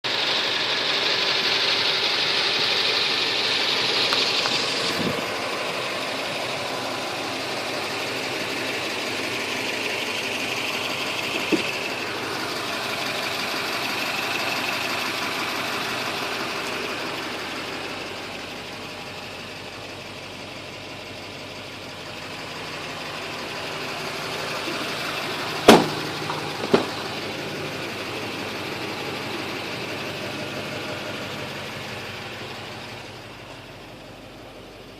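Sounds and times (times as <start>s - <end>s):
diesel engine idling: 0.0s - 34.9s
sharp knocks: 25.7s - 27.0s.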